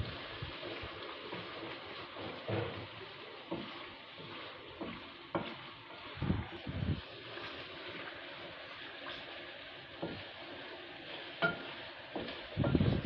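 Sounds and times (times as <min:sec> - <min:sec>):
chicken sizzling in a pan: 0:00.0 - 0:13.0
spatula knocking against pan: 0:04.8 - 0:05.6, 0:11.4 - 0:12.9.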